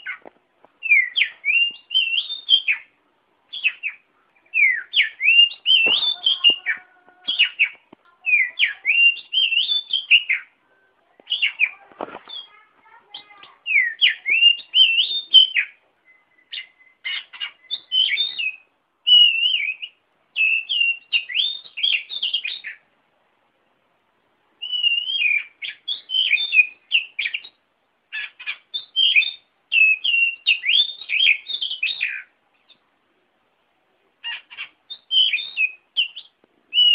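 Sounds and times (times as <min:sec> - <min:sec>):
bird singing whistled phrases: 0:00.8 - 0:02.9, 0:03.5 - 0:10.5, 0:11.3 - 0:12.6, 0:13.2 - 0:22.8, 0:24.6 - 0:32.3, 0:34.2 - 0:36.9.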